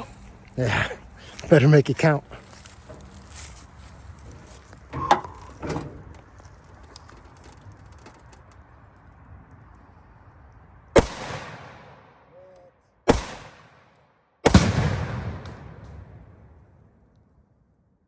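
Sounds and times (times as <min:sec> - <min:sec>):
rifle shots echoing: 0:11.0 - 0:12.2, 0:13.1 - 0:16.8.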